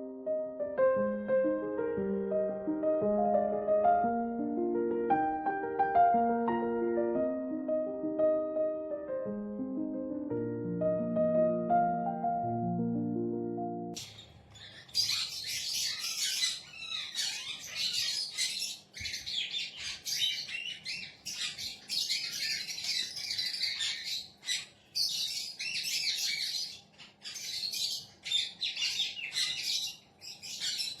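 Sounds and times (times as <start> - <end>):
parrot chirping and chattering: 14.0 - 31.0.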